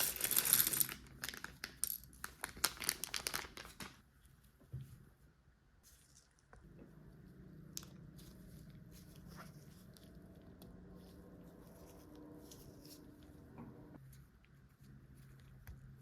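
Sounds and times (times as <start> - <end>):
low steady hum: 4.0 - 16.0.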